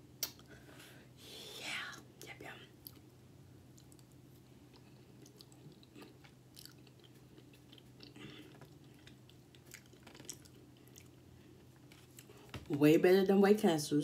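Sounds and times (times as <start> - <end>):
steady low hum: 0.0 - 14.0
mouth clicks and smacks: 0.2 - 0.5, 3.8 - 11.1
person chewing food: 3.7 - 12.5.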